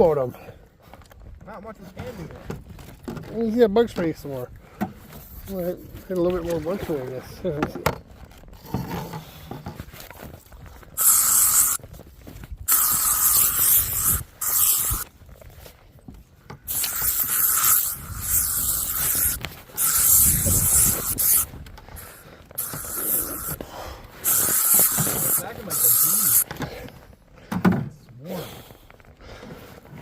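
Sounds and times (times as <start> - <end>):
aerosol spray hissing: 11.0 - 11.8, 12.7 - 15.0, 16.7 - 21.5, 22.6 - 23.6, 24.2 - 26.4.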